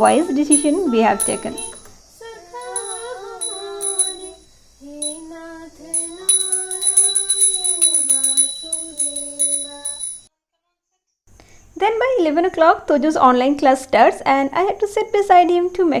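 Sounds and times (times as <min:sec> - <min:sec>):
hand bell ringing rapidly: 0:00.0 - 0:01.9, 0:02.6 - 0:04.4, 0:05.0 - 0:05.3, 0:05.9 - 0:10.3
woman and child chanting: 0:00.0 - 0:10.8.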